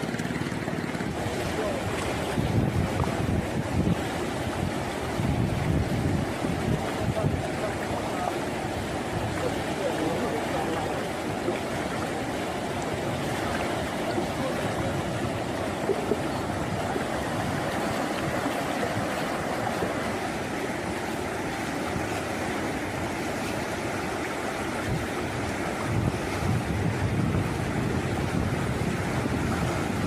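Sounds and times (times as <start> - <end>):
rushing floodwater: 0.0 - 30.0.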